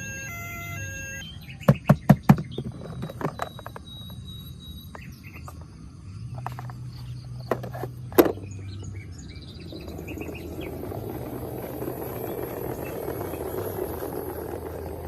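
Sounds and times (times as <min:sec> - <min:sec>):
toy siren beeping: 0:00.0 - 0:01.7, 0:03.0 - 0:05.0
faint chirps: 0:02.6 - 0:07.5.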